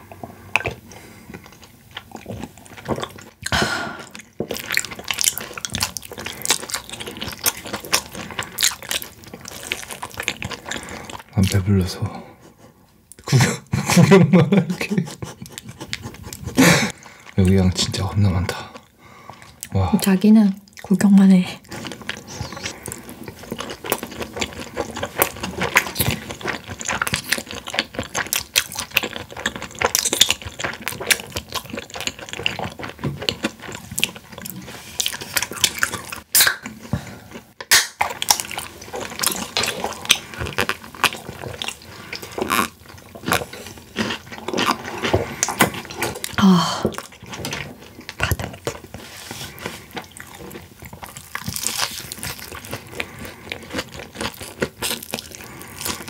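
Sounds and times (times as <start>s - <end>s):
crunching and chewing fried chicken: 0.4s - 12.6s, 14.8s - 19.8s, 21.6s - 56.0s
wet smacking mouth noises: 35.4s - 36.9s, 37.6s - 38.5s.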